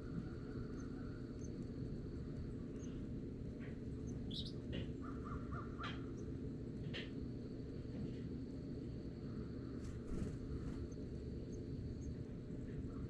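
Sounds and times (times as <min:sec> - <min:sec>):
low background rumble: 0:00.0 - 0:13.0
birds calling: 0:02.7 - 0:06.4.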